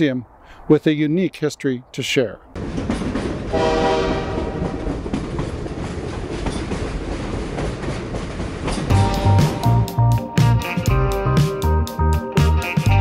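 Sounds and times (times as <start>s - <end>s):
train rumbling on rails: 2.6s - 9.6s
train horn: 3.5s - 4.8s
faint clickety-clack: 4.6s - 8.9s
music: 8.9s - 13.0s.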